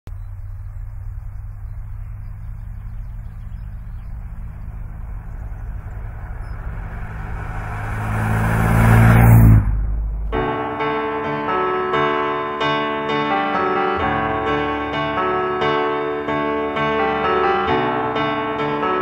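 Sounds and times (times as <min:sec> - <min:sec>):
car engine driving: 0:00.1 - 0:11.7.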